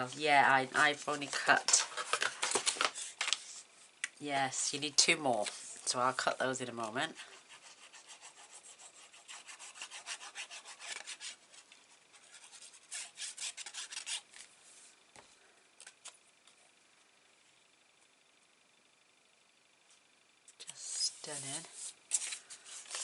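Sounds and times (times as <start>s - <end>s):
rubbing strokes on paper: 7.1s - 11.5s, 12.1s - 14.2s
scraping strokes: 7.1s - 14.4s.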